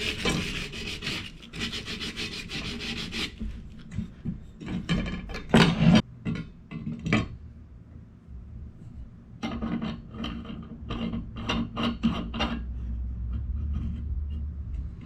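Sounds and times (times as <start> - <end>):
hand rubbing metal fitting: 0.0 - 5.1
steady low hum: 0.0 - 15.0.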